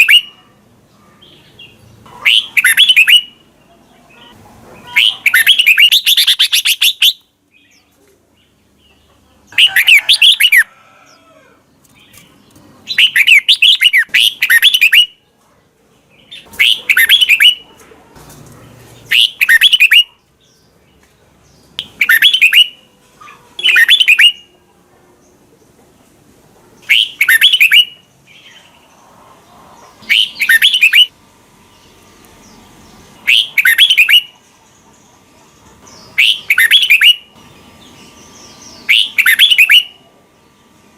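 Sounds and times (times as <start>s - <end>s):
bird singing whistled phrases: 0.0s - 0.3s, 2.2s - 3.4s, 12.9s - 15.1s, 16.6s - 17.6s, 19.1s - 20.1s, 21.8s - 22.8s, 23.6s - 24.4s, 26.9s - 28.0s, 30.1s - 31.1s, 33.2s - 34.3s, 36.2s - 37.2s, 38.9s - 40.0s.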